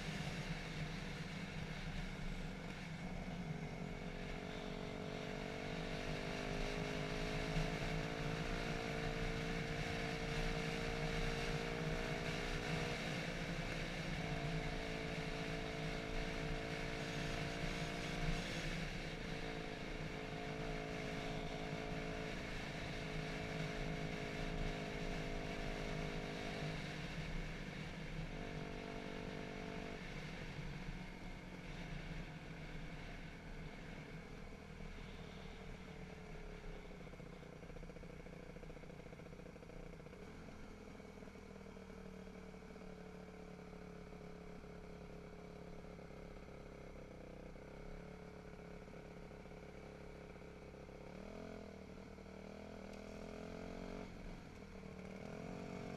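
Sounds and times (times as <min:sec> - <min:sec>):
dirt bike engine running: 0:30.0 - 0:55.9.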